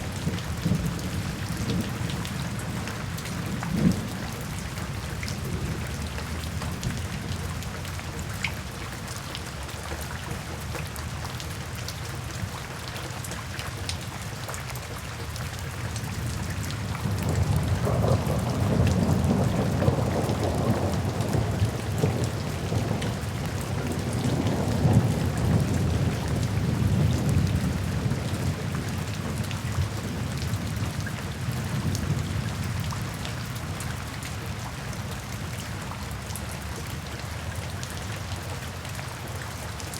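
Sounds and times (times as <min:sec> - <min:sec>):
steady rain: 0:00.0 - 0:39.9
thunder rumbling: 0:17.0 - 0:31.0.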